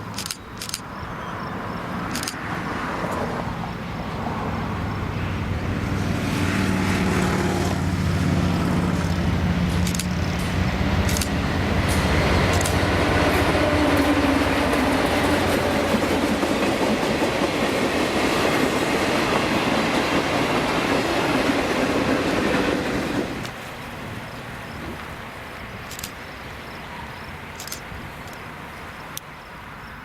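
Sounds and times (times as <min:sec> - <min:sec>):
locomotive engine hum: 0:00.0 - 0:30.0
sharp clicks: 0:00.1 - 0:00.9, 0:02.1 - 0:02.4, 0:08.9 - 0:10.2, 0:11.0 - 0:12.8, 0:25.9 - 0:26.2, 0:27.6 - 0:28.4
train wheels rolling on rails: 0:01.9 - 0:03.6, 0:04.2 - 0:29.2.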